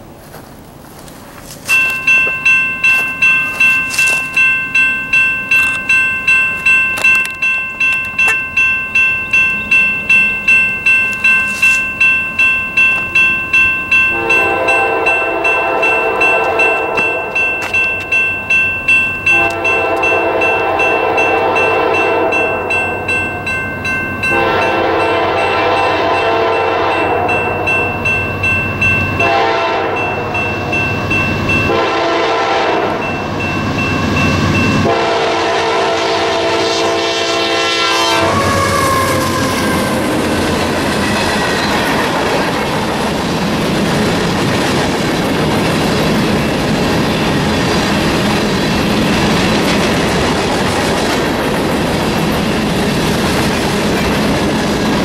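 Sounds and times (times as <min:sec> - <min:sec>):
train cars clattering over rails: 0:00.2 - 0:35.2, 0:38.2 - 0:55.0
crossing bell dinging: 0:01.6 - 0:55.0
locomotive horn blasts: 0:14.1 - 0:17.6, 0:19.3 - 0:22.7, 0:24.2 - 0:27.6, 0:29.2 - 0:30.3, 0:31.6 - 0:33.2, 0:34.8 - 0:40.3.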